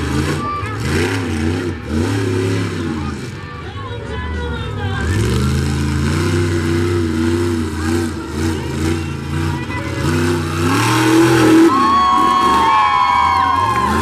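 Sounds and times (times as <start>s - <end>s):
truck engine revving: 0.0s - 14.0s
crowd cheering and whistling: 10.2s - 14.0s.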